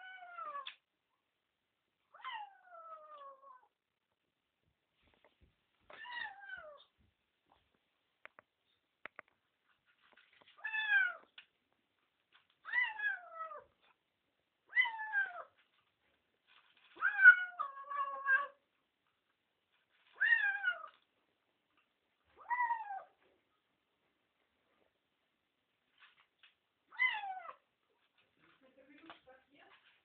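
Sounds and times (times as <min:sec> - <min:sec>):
cat meowing: 0:02.1 - 0:03.7, 0:06.0 - 0:06.9, 0:10.6 - 0:11.3, 0:12.6 - 0:13.7, 0:14.7 - 0:15.6, 0:17.0 - 0:18.6, 0:20.2 - 0:21.0, 0:26.9 - 0:27.6.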